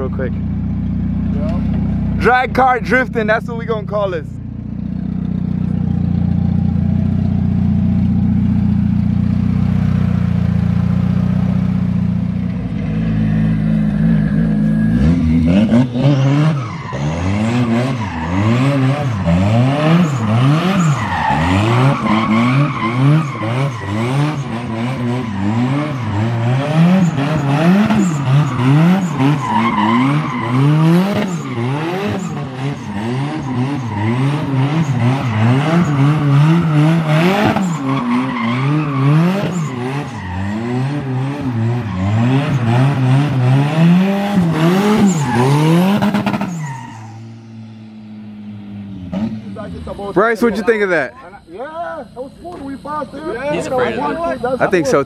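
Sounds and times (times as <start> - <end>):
turbocharged car engine revving: 0.0 - 55.0
tyres squealing: 20.0 - 41.1.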